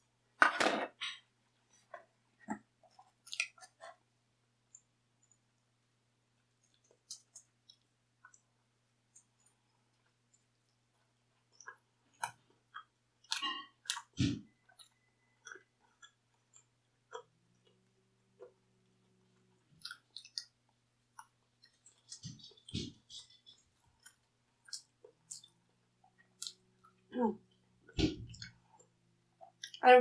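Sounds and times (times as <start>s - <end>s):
chewing crispy pizza: 2.8s - 4.0s, 6.4s - 8.5s, 9.1s - 27.1s.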